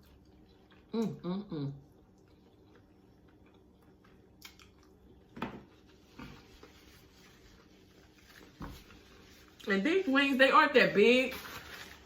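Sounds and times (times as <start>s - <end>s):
chewing fried chicken: 0.0s - 6.8s.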